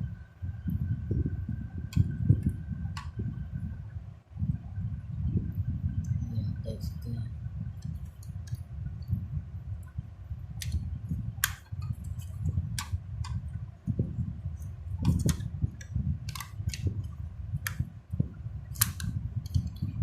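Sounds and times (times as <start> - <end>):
toy car clicks and taps: 16.3 - 16.9.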